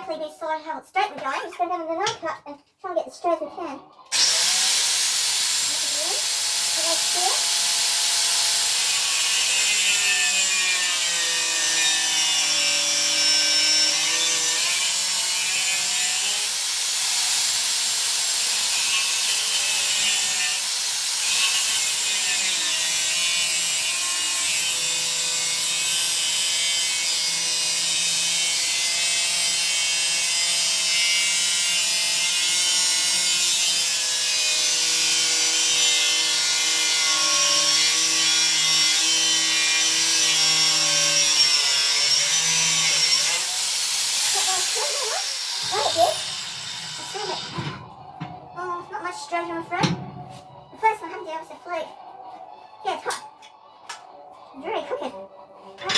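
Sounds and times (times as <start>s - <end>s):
angle grinder cutting steel: 4.1s - 48.5s.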